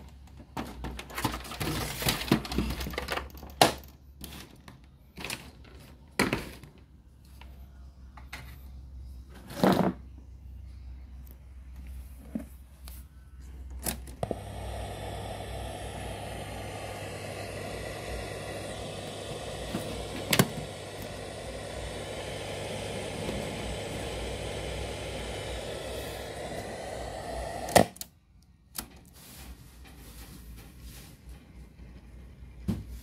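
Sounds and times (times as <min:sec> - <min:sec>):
low mains hum: 0:00.0 - 0:33.0
speaker hiss: 0:14.2 - 0:27.9.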